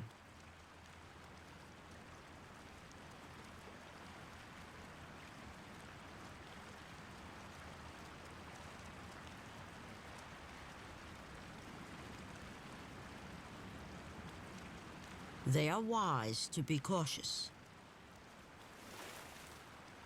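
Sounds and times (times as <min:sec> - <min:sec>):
creek water flowing: 0:13.4 - 0:20.0.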